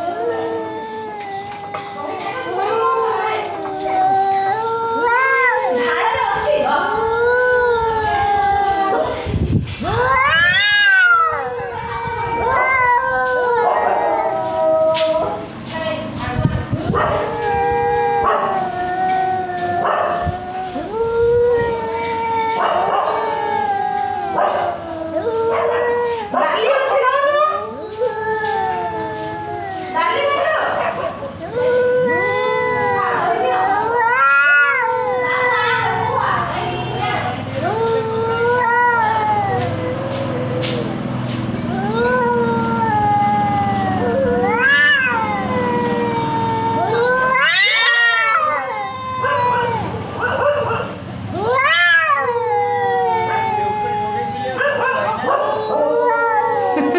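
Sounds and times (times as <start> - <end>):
cat growling: 0.0 - 15.1, 31.4 - 50.2, 51.3 - 56.9
cats yowling: 0.0 - 56.9
cat hissing: 32.0 - 50.2.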